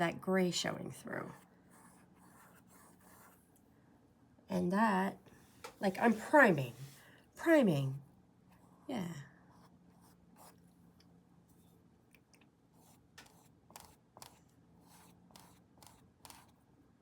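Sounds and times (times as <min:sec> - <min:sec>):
low room hum: 0:00.0 - 0:17.0
paintbrush strokes scratching: 0:05.4 - 0:07.0.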